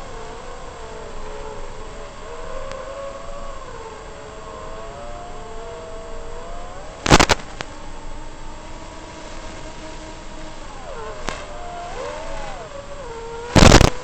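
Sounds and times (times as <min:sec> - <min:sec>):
drone motors whining: 0:00.0 - 0:14.0
loud noise burst: 0:07.0 - 0:07.8, 0:08.7 - 0:14.0.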